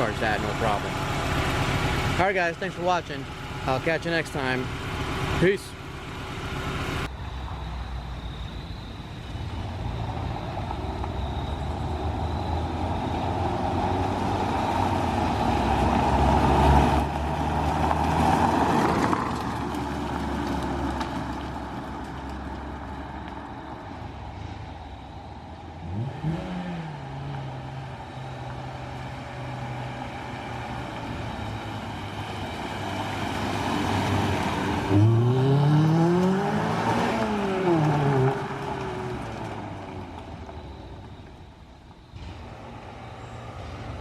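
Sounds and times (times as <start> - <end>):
car engine running: 0.0 - 7.1
engine revving: 25.8 - 28.0, 32.9 - 39.6.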